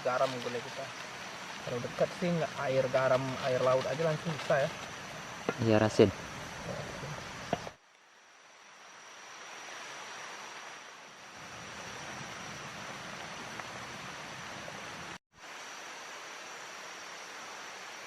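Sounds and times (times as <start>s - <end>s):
river water rushing: 0.0s - 5.5s.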